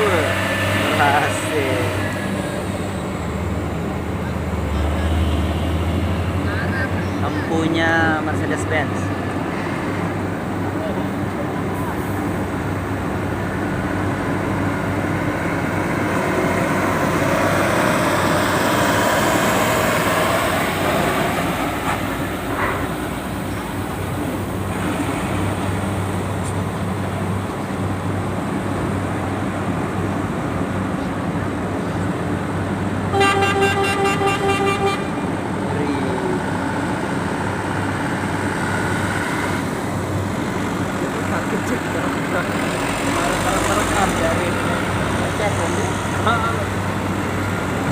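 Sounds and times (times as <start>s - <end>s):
vehicle engines rumbling: 0.0s - 47.9s
vehicle horn short beeps: 33.2s - 35.1s.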